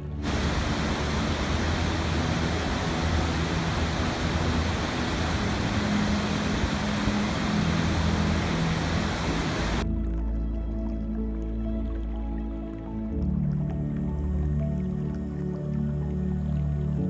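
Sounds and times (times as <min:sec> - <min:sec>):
water rushing: 0:00.0 - 0:09.8.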